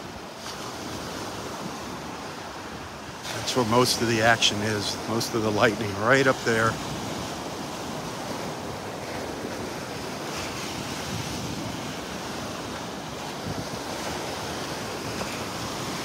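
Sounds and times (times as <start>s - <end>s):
surf breaking on beach: 0.0s - 16.0s
wind buffeting microphone: 6.5s - 16.0s.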